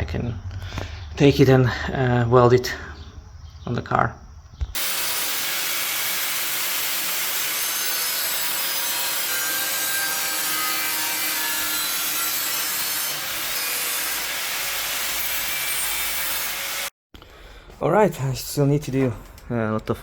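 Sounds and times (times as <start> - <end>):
power tool cutting sheet metal: 4.8 - 16.9.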